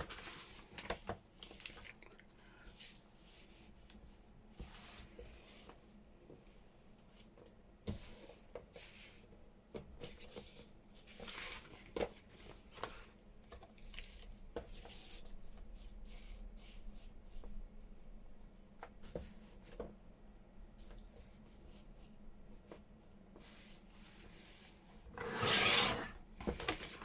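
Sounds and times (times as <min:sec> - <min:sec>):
paper rustling and sliding: 0:25.2 - 0:27.0.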